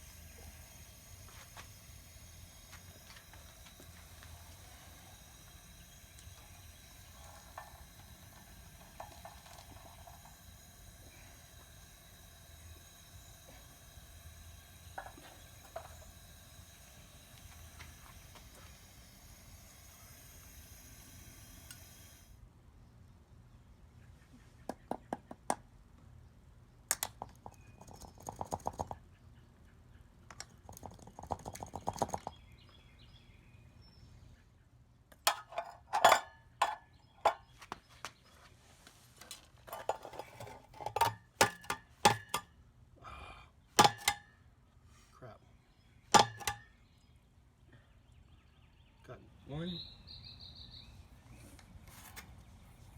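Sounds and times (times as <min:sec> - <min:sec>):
furnace burner hiss: 0:00.0 - 0:22.4
metal clinks and knocks: 0:02.7 - 0:18.7, 0:35.2 - 0:37.5, 0:46.1 - 0:46.7.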